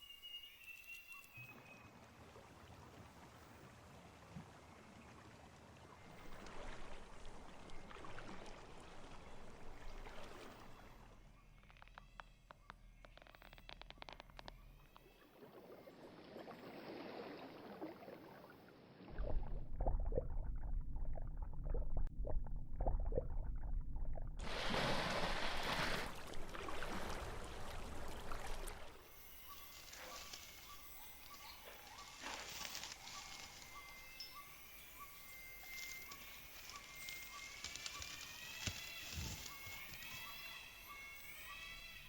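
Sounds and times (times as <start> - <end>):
rising whistled animal calls: 0.0 - 1.8, 29.2 - 42.0
rushing sloshing water noise: 1.5 - 11.2, 15.4 - 19.2, 24.4 - 34.1
muffled low rumble: 19.2 - 24.4.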